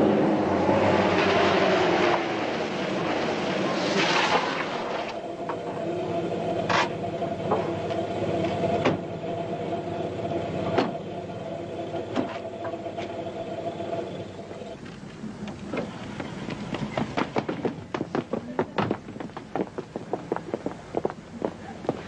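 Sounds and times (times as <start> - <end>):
car engine running: 4.6 - 18.0.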